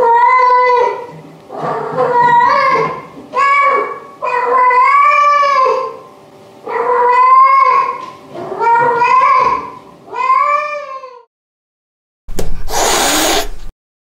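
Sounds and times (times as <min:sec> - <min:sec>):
cats yowling: 0:00.0 - 0:06.0, 0:06.7 - 0:11.3.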